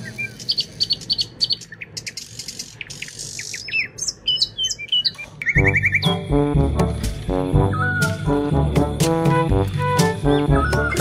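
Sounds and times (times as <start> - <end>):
birds chirping: 0.0 - 9.0, 9.9 - 11.0
music with low beat: 5.6 - 11.0.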